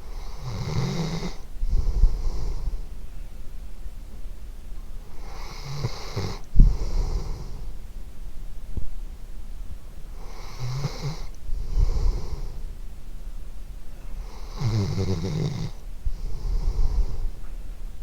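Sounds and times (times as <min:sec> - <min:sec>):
dog snoring: 0:00.1 - 0:02.8, 0:05.1 - 0:07.7, 0:10.2 - 0:12.7, 0:14.2 - 0:17.5.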